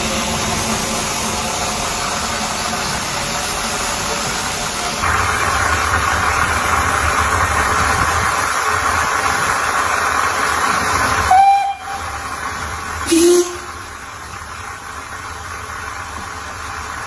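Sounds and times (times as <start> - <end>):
train rushing and rumbling: 0.0 - 17.0
train horn toot: 11.3 - 12.2, 13.1 - 13.7.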